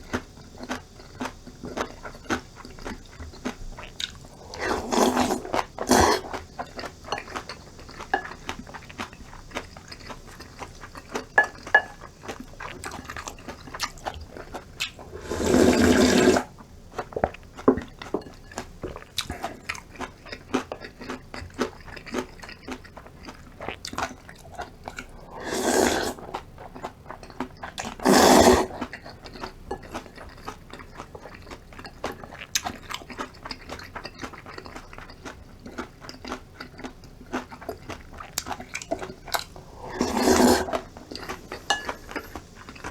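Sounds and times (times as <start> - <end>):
slurping broth: 0.0 - 18.2, 24.3 - 27.0, 27.7 - 31.4, 37.4 - 42.9
wet chewing: 0.0 - 42.9.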